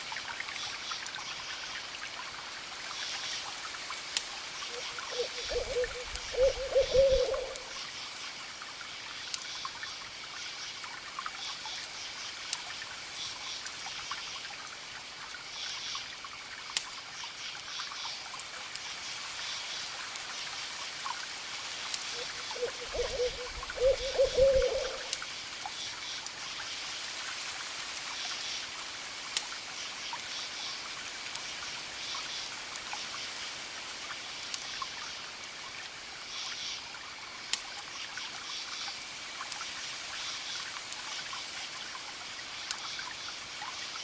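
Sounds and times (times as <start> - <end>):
campfire crackling: 1.0 - 17.6, 18.2 - 30.0, 30.8 - 36.2
crickets chirping: 4.6 - 8.4, 21.8 - 26.8
owl hooting: 4.7 - 7.7, 22.2 - 25.1.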